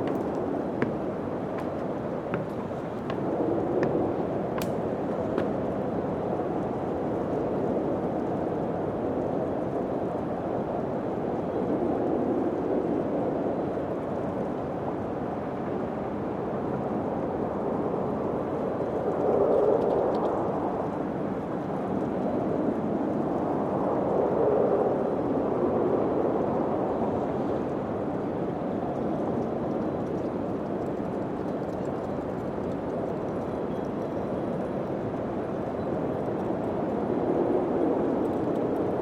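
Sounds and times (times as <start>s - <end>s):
wind blowing: 0.0s - 6.8s.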